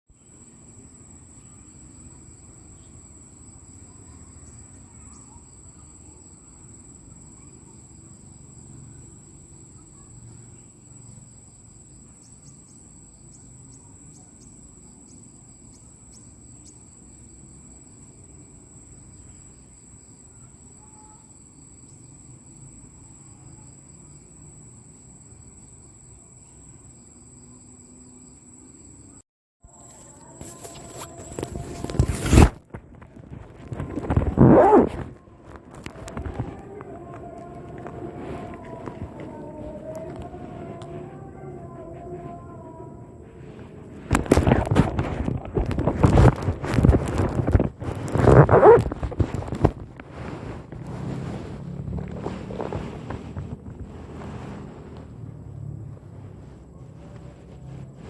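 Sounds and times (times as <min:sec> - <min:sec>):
crickets trilling: 0:00.2 - 0:58.0
low outdoor rumble: 0:32.6 - 0:58.0.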